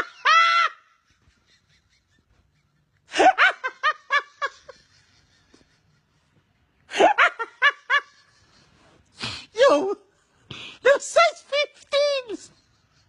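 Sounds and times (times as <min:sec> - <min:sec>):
person laughing: 0:00.0 - 0:08.9.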